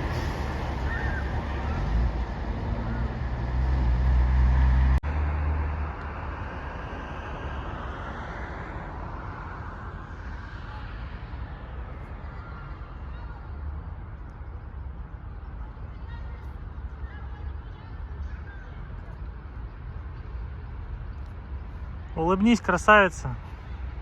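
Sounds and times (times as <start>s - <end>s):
vehicle passing by: 0.0s - 13.6s
vehicle low rumble: 0.0s - 24.0s.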